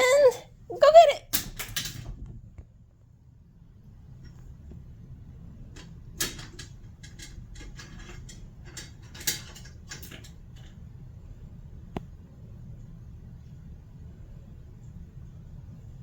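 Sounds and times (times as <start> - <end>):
light clicks and knocks of toy: 5.7 - 10.8.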